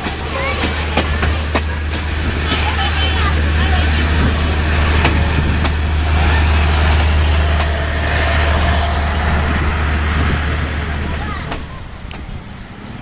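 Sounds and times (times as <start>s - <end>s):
diesel engine idling: 0.0s - 12.7s.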